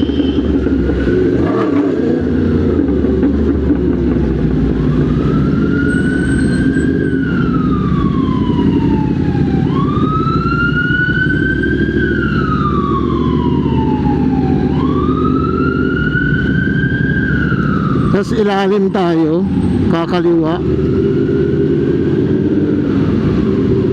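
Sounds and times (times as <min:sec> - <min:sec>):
motorcycle engine rumble: 0:00.0 - 0:18.3
emergency siren wailing: 0:00.0 - 0:23.9.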